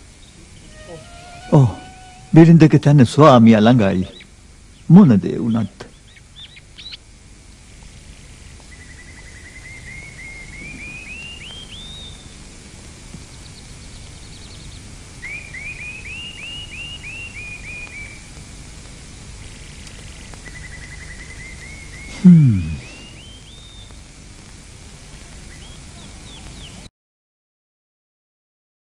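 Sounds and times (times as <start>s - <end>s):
steady outdoor hiss: 0.0s - 26.9s
faint bird chirps: 0.2s - 2.4s, 5.5s - 7.0s, 8.7s - 12.4s, 13.3s - 18.3s, 19.7s - 24.0s, 25.2s - 26.9s.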